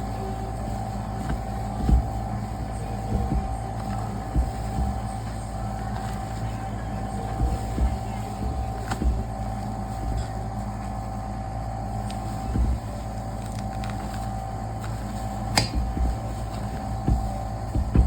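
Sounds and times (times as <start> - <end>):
machine hum: 0.0 - 18.0
low thumps: 0.6 - 11.2, 12.3 - 13.3, 15.2 - 18.0.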